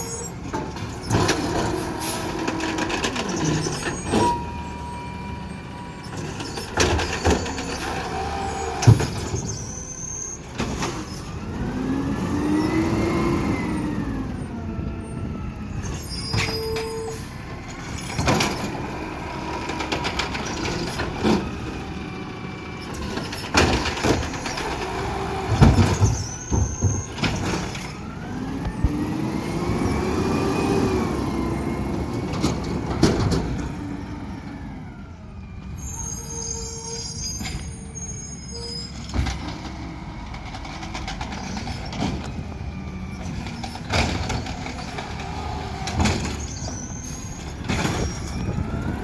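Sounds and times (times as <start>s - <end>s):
garbage truck engine: 0.0s - 49.0s
knocks and clanks: 25.5s - 28.0s.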